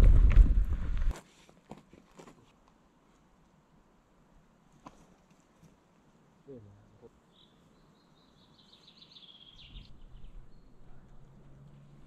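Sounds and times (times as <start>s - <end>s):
low outdoor background noise: 1.0s - 12.0s
faint songbird chirps: 6.5s - 11.4s.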